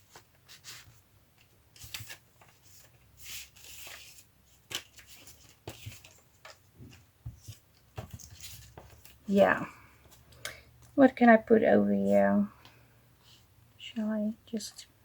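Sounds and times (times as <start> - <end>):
paper rustling: 0.0 - 9.3.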